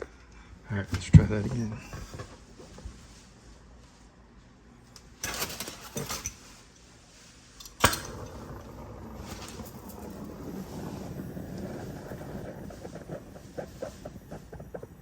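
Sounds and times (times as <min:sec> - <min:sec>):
tools rustling and clattering: 0:05.0 - 0:06.8
steady hiss: 0:06.6 - 0:15.0.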